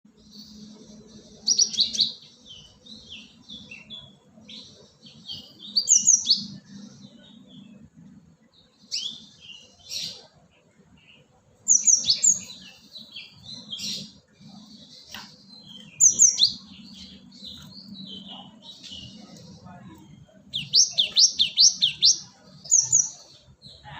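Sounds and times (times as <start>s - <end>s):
bird twittering chatter: 11.1s - 23.9s.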